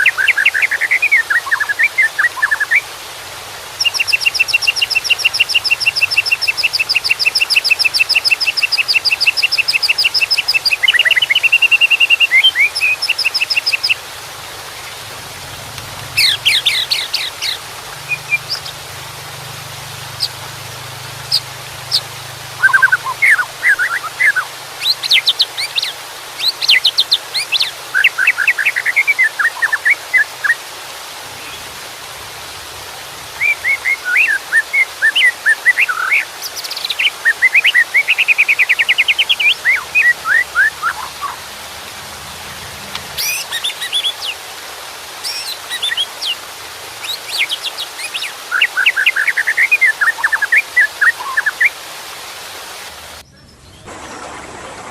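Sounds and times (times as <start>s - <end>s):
bird singing whistles and trills: 0.0s - 2.8s, 3.8s - 14.0s, 21.3s - 30.6s, 33.4s - 41.4s, 47.0s - 51.8s
running water hiss: 0.0s - 54.9s.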